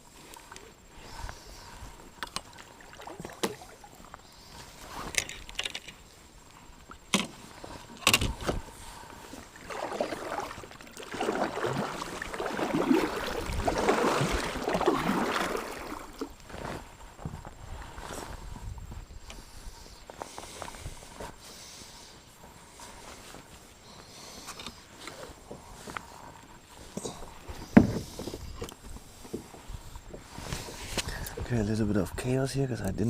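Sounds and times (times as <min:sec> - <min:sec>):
water sloshing around a hull: 0:00.0 - 0:31.5
knocks and clicks on a kayak: 0:07.1 - 0:08.7, 0:27.6 - 0:29.5.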